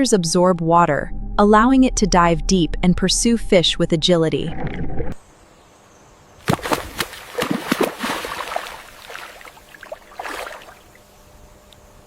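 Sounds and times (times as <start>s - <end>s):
water splashing and sloshing: 6.4s - 11.1s.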